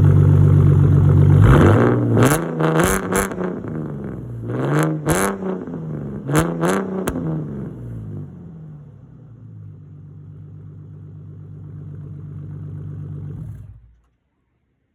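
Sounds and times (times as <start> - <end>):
car engine idling: 0.0 - 2.6, 7.4 - 14.4.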